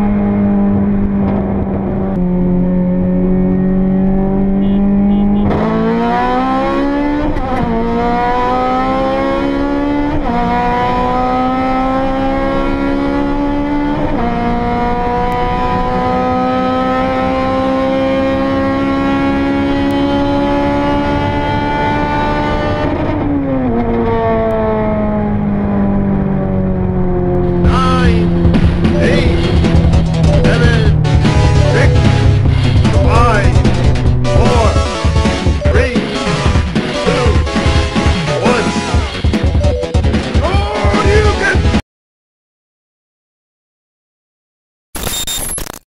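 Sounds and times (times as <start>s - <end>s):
car engine accelerating through gears: 0.0s - 39.8s.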